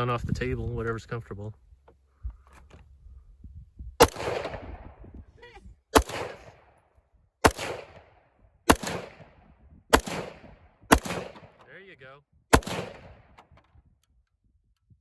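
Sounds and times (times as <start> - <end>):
rifle shots with echo: 4.0 - 5.1, 5.9 - 6.8, 7.4 - 11.7, 12.5 - 13.4.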